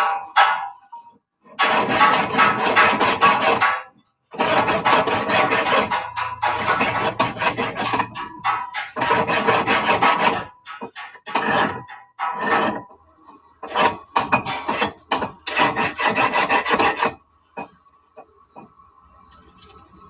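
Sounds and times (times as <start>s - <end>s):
file rasping on steel: 1.5s - 13.0s, 13.6s - 17.8s.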